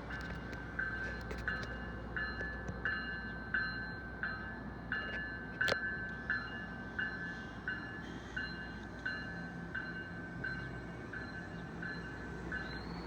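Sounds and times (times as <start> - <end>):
crossing bell ringing: 0.8 - 13.0.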